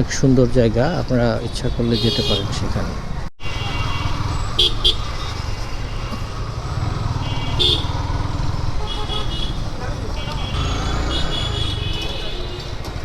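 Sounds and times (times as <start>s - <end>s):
horn toots: 1.8s - 2.6s, 3.4s - 13.0s
motorcycle engine and wind rumble: 1.9s - 13.0s.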